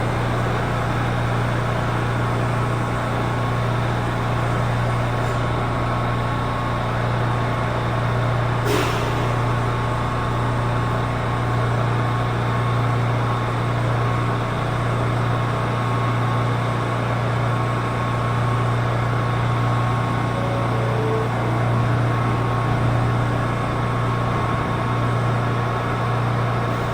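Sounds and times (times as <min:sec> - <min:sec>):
subway train low hum: 0:00.0 - 0:26.9
faint high whine: 0:20.2 - 0:22.5.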